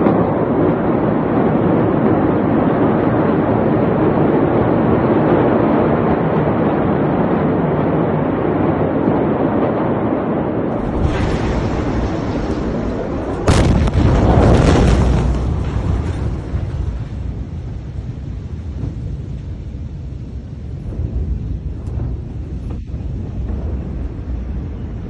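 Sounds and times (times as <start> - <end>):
loud rushing noise: 10.7 - 25.0.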